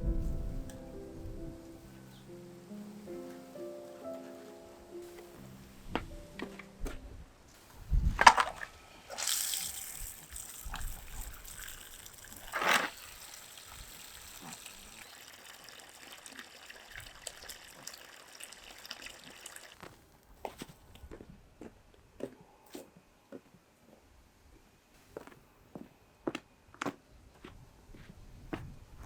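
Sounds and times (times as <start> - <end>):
water splashing and trickling: 8.0 - 20.0
water gushing: 9.1 - 19.8.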